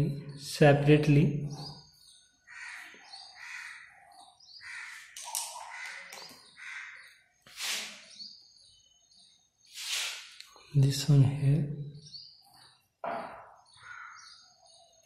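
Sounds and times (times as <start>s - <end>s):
harsh caw-like bird calls: 2.4s - 8.2s, 13.1s - 14.6s
brief hissing: 7.5s - 8.1s, 9.7s - 10.4s.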